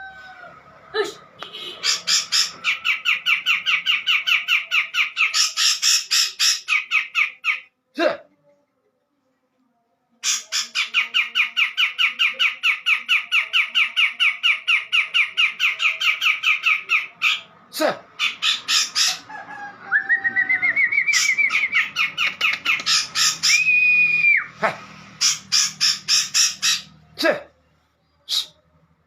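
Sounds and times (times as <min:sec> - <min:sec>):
bird harsh chattering song: 0:01.5 - 0:07.6, 0:10.2 - 0:17.5, 0:18.2 - 0:19.3, 0:21.0 - 0:24.2, 0:25.2 - 0:27.0.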